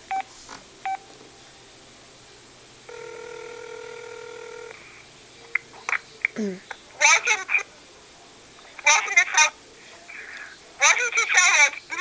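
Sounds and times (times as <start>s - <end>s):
telephone ringback tone: 2.9s - 4.8s.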